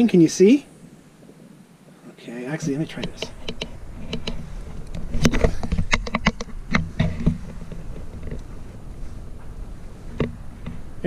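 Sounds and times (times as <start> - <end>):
photo slides clicking and knocking: 2.9 - 8.5.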